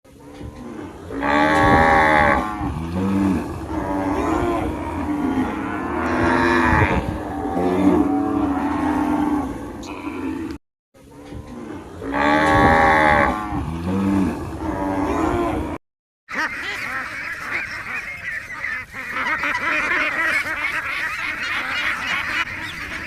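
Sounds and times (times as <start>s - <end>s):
cattle mooing: 0.1s - 15.8s.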